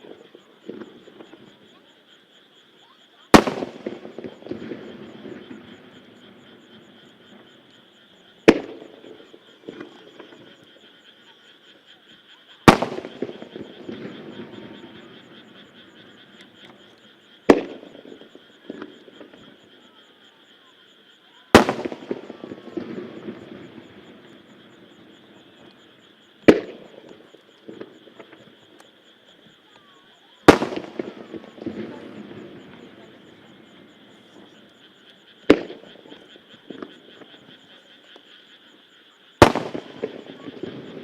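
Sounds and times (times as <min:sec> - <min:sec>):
crackling firework tail: 0:00.0 - 0:01.8, 0:03.3 - 0:11.2, 0:12.6 - 0:19.9, 0:21.5 - 0:41.0
firework shells bursting: 0:03.3 - 0:07.5, 0:08.4 - 0:10.5, 0:12.7 - 0:16.8, 0:17.5 - 0:19.5, 0:21.5 - 0:25.8, 0:26.4 - 0:28.9, 0:30.4 - 0:33.0, 0:39.4 - 0:41.0.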